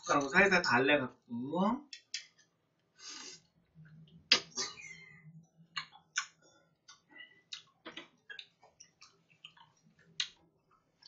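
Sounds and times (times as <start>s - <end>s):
chewing with mouth clicks: 5.7s - 10.9s.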